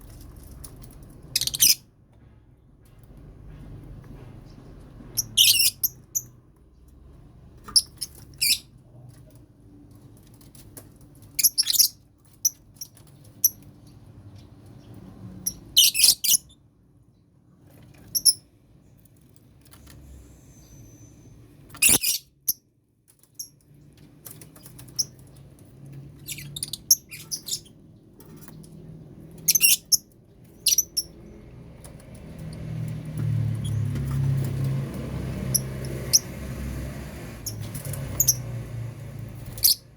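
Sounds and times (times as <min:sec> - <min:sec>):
lovebirds chirping shrilly: 0:01.3 - 0:01.8, 0:05.2 - 0:06.3, 0:21.8 - 0:22.3, 0:30.6 - 0:31.2, 0:39.5 - 0:39.8.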